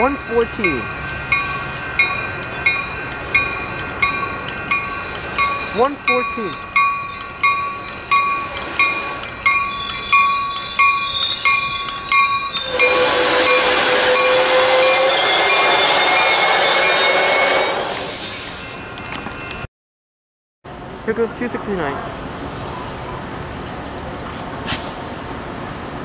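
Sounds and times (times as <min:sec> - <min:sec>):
railroad crossing bell ringing: 0:00.0 - 0:17.4, 0:18.2 - 0:19.7
train wheel rush: 0:00.0 - 0:19.6
train brakes squealing: 0:04.2 - 0:19.6.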